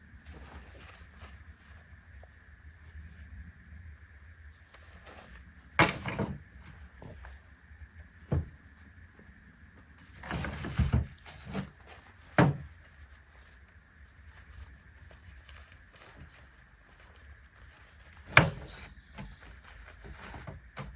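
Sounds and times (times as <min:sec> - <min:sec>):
rattling and scraping: 0:10.0 - 0:20.9
gear knocking and clunking: 0:17.9 - 0:20.9.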